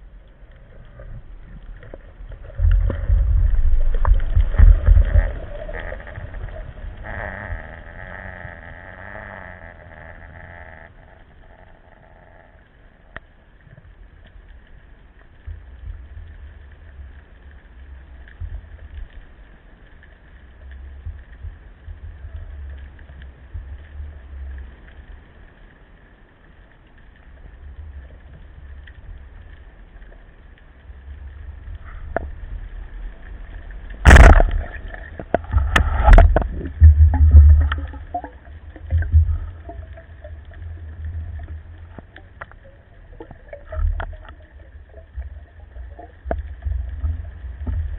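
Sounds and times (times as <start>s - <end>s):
low underwater rumble: 0.0s - 47.9s
low thumps: 33.9s - 40.0s.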